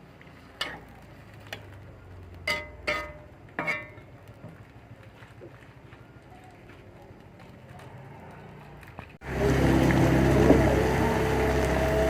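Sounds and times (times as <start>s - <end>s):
metal cookware clanking: 0.6s - 0.9s, 2.4s - 4.2s.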